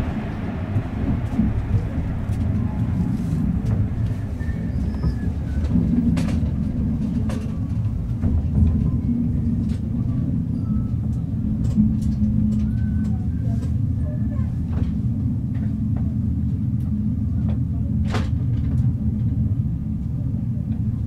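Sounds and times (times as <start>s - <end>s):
wheels clicking over rail joints: 0.0s - 15.7s
train car rumbling: 0.0s - 21.0s.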